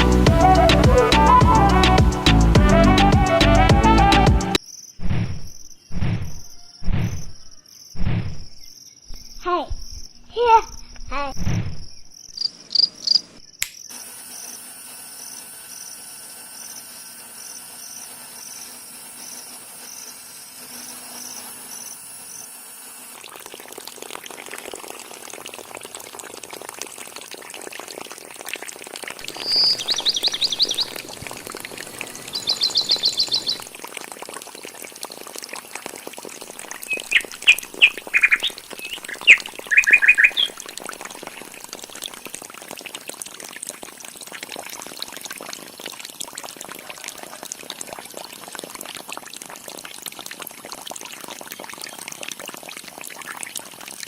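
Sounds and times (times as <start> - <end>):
high pulsing insect call: 4.6 - 23.6, 29.2 - 33.8, 36.4 - 42.2
birds chirping: 12.2 - 13.6, 29.2 - 33.7, 36.7 - 40.7
bird trills: 29.3 - 33.7, 36.8 - 40.6.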